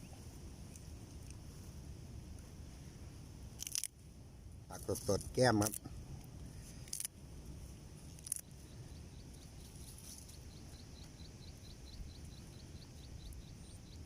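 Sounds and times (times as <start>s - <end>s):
low background rumble: 0.0s - 14.0s
faint chirping call: 8.4s - 14.0s.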